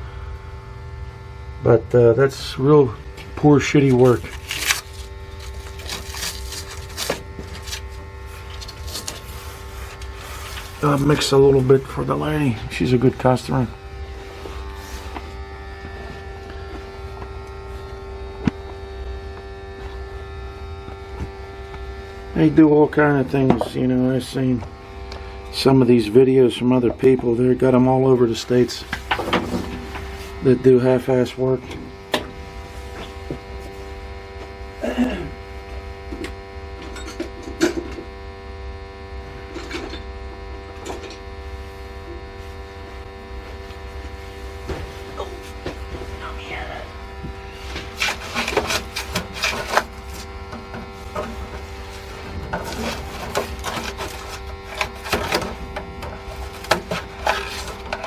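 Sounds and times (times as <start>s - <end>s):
steady hum of tones: 0.0s - 58.0s
short knocks and scrapes: 47.6s - 55.9s.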